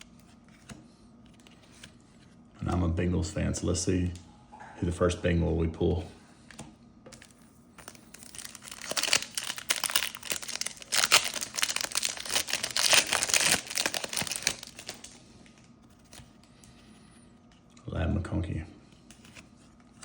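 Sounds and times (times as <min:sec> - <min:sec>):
wrapper tearing and crinkling: 0:07.8 - 0:16.2.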